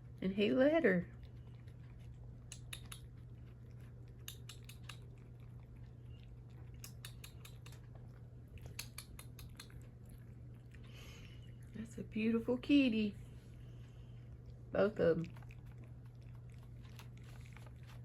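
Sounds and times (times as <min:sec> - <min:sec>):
cats chewing and crunching food: 0:00.0 - 0:18.0
low steady hum: 0:00.0 - 0:18.0.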